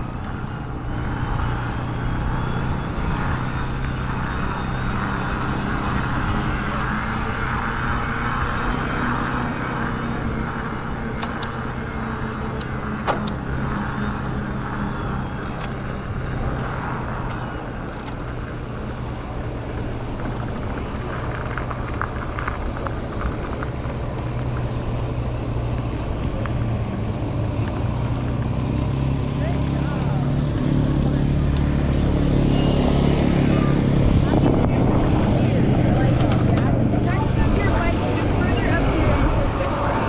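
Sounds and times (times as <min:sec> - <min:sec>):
electric bike riding noise: 0:00.0 - 0:40.0
sharp clicks: 0:11.1 - 0:11.8, 0:12.5 - 0:13.5.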